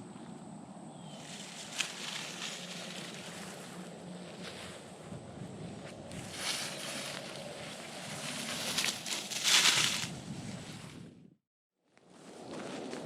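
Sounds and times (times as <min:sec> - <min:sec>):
rustling in dry leaves: 0:01.1 - 0:11.0.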